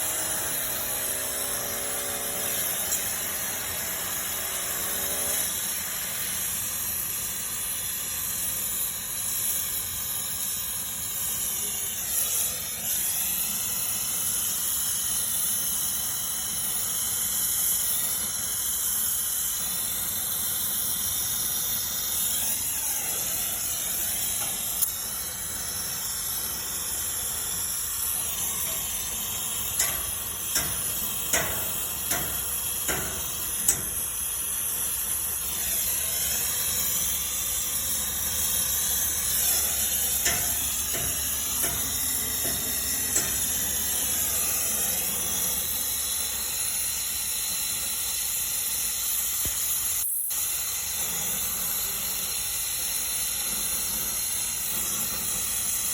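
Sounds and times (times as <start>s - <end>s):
torch flame hissing: 2.5s - 55.9s
sharp metallic clicks: 29.6s - 34.2s, 39.2s - 44.2s.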